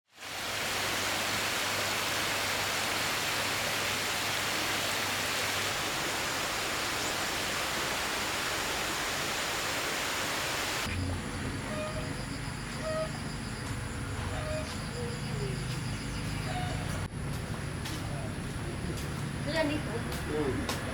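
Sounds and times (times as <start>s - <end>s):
river water rushing: 0.1s - 10.9s.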